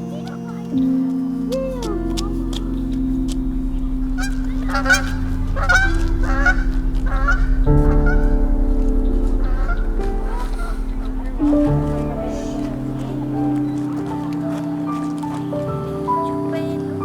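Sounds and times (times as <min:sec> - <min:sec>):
background music: 0:00.0 - 0:17.0
bird honking: 0:04.2 - 0:08.3.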